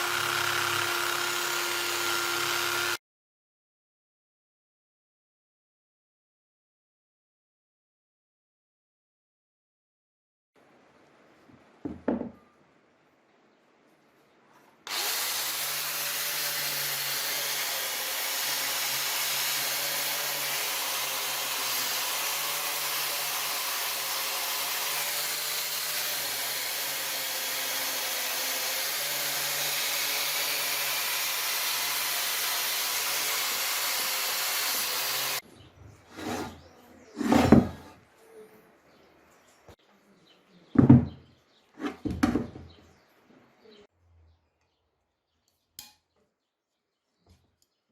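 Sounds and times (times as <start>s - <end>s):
power tool running: 0.0s - 3.0s, 14.9s - 35.4s.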